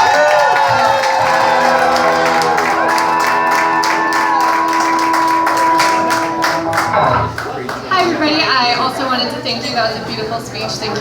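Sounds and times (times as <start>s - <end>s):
held musical notes: 0.0s - 7.7s
crowd clapping and cheering: 0.0s - 8.4s.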